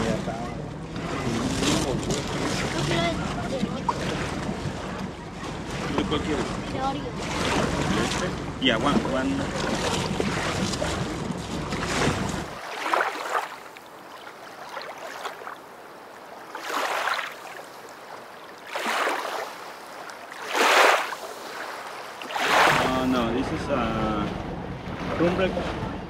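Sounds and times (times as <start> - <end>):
waves lapping against boat hull: 0.0 - 26.0
low rumble: 0.2 - 12.6.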